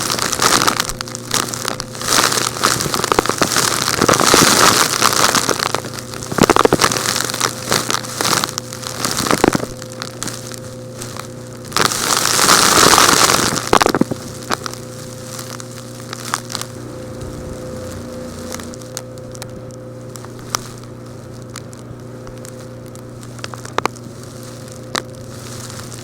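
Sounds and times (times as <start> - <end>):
gritty hissing sifting: 0.0 - 21.4, 22.0 - 26.0
rock chunks being crushed: 11.7 - 16.7
steady low hum: 14.0 - 26.0.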